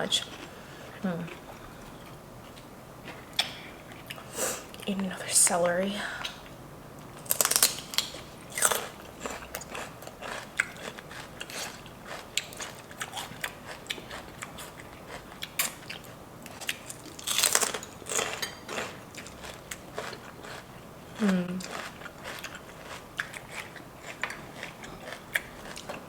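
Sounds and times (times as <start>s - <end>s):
crackly chewing: 0.1s - 4.9s, 6.2s - 26.0s
celery crunching: 7.2s - 15.8s, 16.6s - 26.0s.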